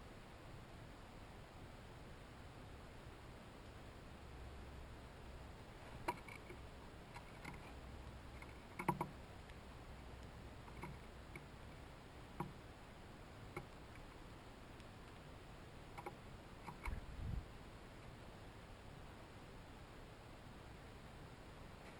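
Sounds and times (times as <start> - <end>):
faint low hum: 0.0 - 21.9
clicks and taps at feeder: 6.0 - 9.6, 10.2 - 11.5, 12.4 - 12.6, 16.0 - 17.0.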